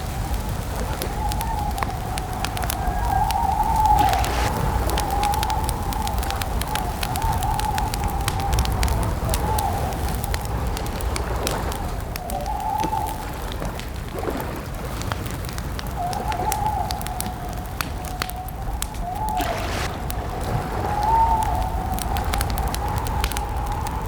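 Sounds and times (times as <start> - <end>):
campfire crackling and popping: 0.0 - 24.0
wavering whistling tone: 0.8 - 7.9, 18.1 - 21.9
low rumble: 1.2 - 12.1, 19.2 - 24.0.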